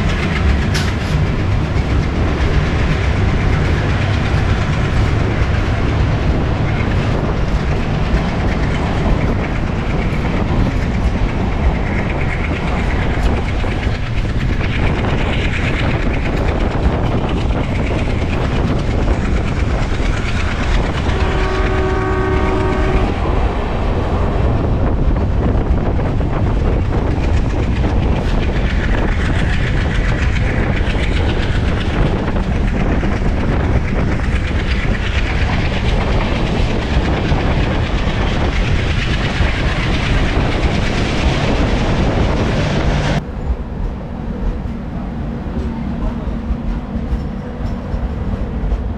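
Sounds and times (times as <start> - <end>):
wheels clattering over rail joints: 0.0 - 44.9
train rumbling past: 0.0 - 48.9
train horn chord: 21.1 - 23.3.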